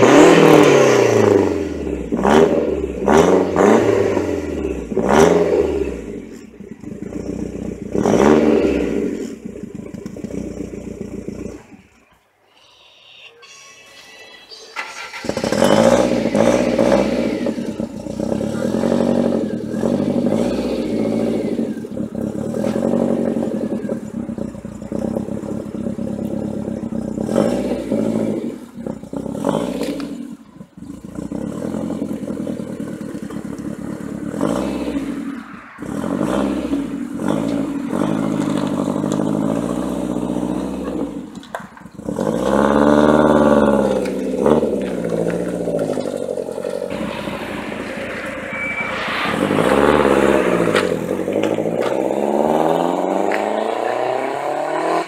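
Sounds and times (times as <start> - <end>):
car engine revving: 0.0 - 12.1, 14.0 - 55.0.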